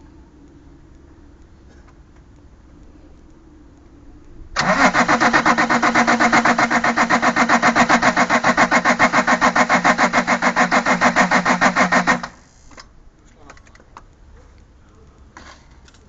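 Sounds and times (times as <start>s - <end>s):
diesel engine cranking: 4.6s - 12.9s
starter motor whine: 4.6s - 12.9s.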